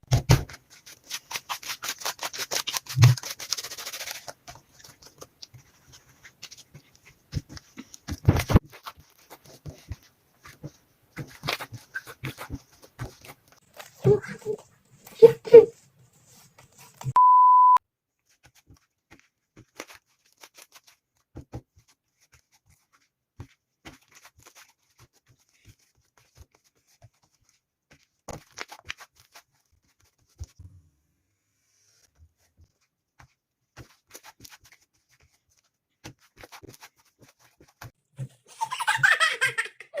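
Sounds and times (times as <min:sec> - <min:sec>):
person speaking: 0:13.8 - 0:15.8
short beep: 0:17.2 - 0:17.8.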